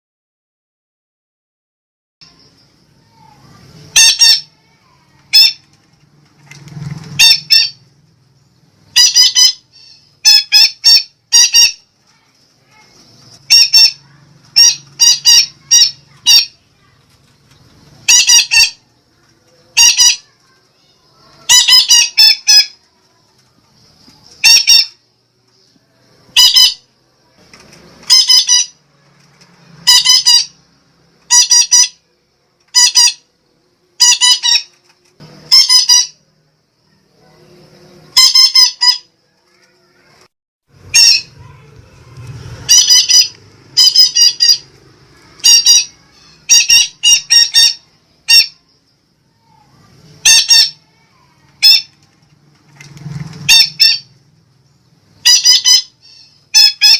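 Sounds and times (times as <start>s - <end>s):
parakeet squawking: 3.8s - 5.7s, 7.2s - 7.8s, 8.8s - 16.9s, 18.0s - 18.8s, 19.7s - 22.8s, 24.4s - 25.0s, 26.3s - 26.9s, 28.0s - 28.8s, 29.8s - 30.6s, 31.2s - 32.0s, 32.7s - 33.3s, 34.0s - 34.7s, 35.5s - 36.2s, 38.1s - 39.1s, 40.8s - 48.7s, 50.2s - 52.0s, 53.5s - 54.2s, 55.2s - 56.9s.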